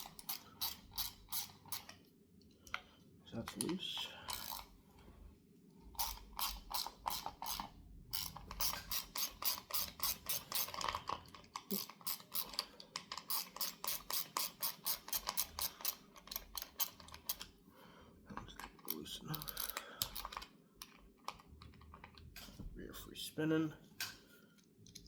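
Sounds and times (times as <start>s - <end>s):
hand ratchet clicking: 0.0s - 1.9s, 4.3s - 4.7s, 6.0s - 11.0s, 11.6s - 17.4s, 18.9s - 20.4s.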